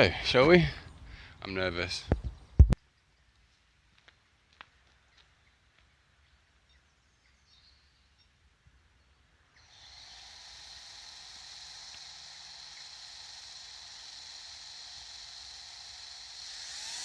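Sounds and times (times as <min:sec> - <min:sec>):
quadcopter motors whirring: 0:09.5 - 0:17.0.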